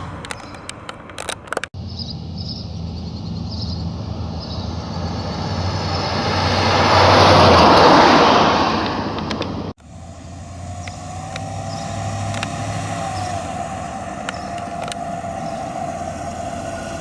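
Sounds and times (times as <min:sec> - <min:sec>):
sharp clicks: 0:00.0 - 0:01.8, 0:08.8 - 0:09.9, 0:10.8 - 0:13.4, 0:14.2 - 0:15.2
car engine hum: 0:00.0 - 0:17.0
road noise: 0:00.0 - 0:17.0.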